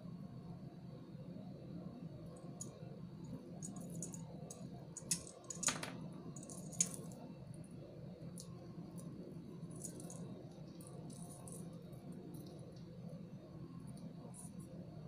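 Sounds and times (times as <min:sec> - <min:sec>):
beads and pliers clicking: 0:03.6 - 0:07.1.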